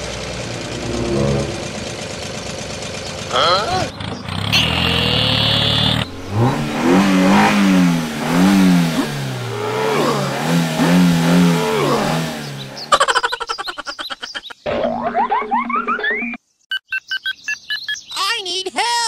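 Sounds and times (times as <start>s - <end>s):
vehicle engine revving: 0.0s - 13.0s.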